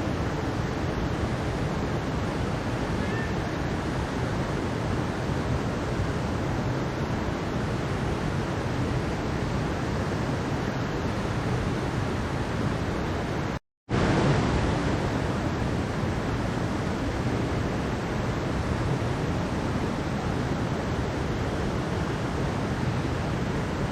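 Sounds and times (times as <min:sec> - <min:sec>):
stream rushing: 0:00.0 - 0:23.9.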